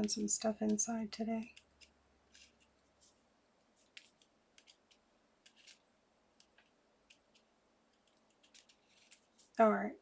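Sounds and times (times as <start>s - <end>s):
small tool ticks and scratches: 1.4s - 2.8s, 3.8s - 5.8s, 6.4s - 9.6s.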